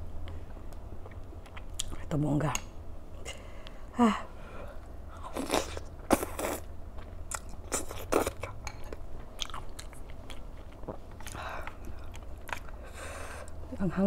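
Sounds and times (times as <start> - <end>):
chewing crunchy food: 0.3 - 2.0, 5.2 - 12.9.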